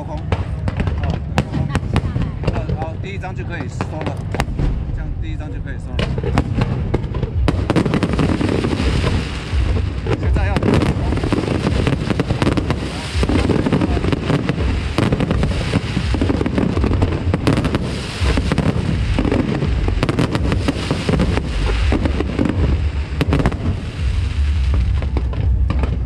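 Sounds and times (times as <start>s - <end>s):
fireworks bangs and crackles: 0.0s - 26.0s
steady low rumble: 0.0s - 26.0s.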